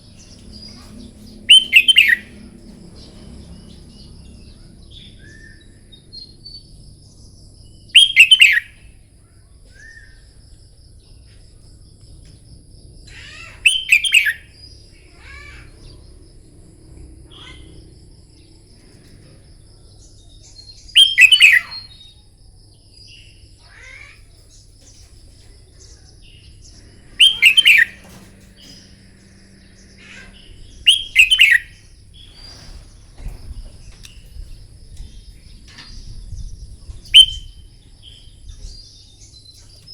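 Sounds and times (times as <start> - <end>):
soft bird chirps: 0.0 - 16.2, 17.3 - 39.9
bird singing short phrases: 0.4 - 2.3, 7.9 - 8.8, 13.2 - 14.4, 20.9 - 22.0, 27.2 - 28.9, 30.1 - 31.8, 37.1 - 39.9.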